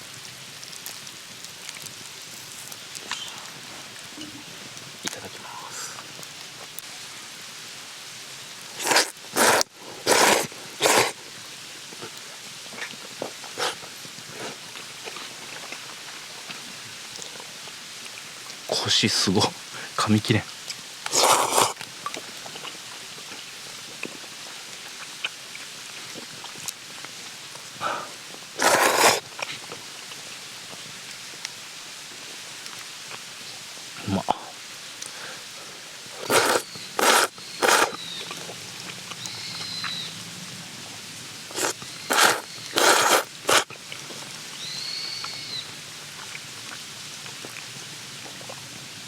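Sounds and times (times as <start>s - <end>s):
campfire crackling: 0.0s - 44.8s
person slurping noodles: 8.8s - 11.2s, 13.5s - 14.6s, 21.1s - 21.8s, 27.8s - 29.3s, 36.2s - 38.0s, 41.5s - 43.8s.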